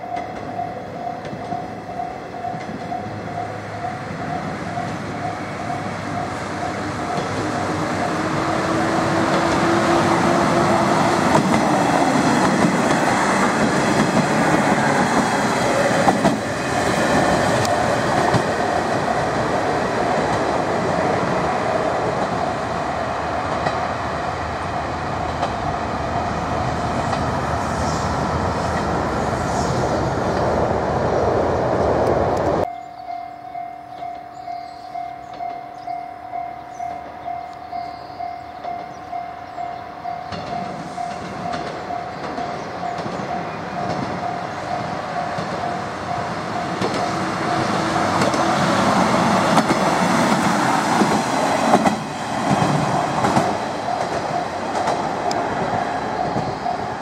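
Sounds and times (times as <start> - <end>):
level-crossing warning bell: 0.0 - 25.4, 32.6 - 49.6, 53.1 - 57.0
diesel railcar engine passing: 0.0 - 57.0
wheels clattering over rail joints: 40.3 - 56.6.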